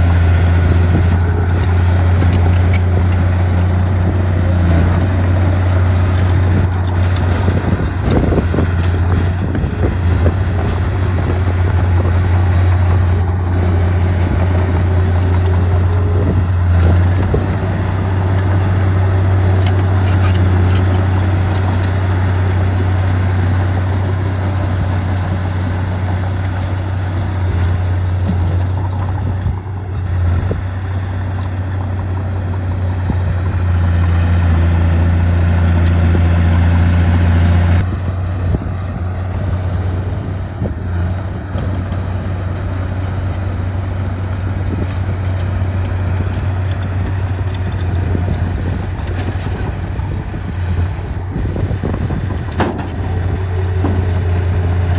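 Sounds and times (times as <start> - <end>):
heavy diesel engine droning: 0.0 - 54.9.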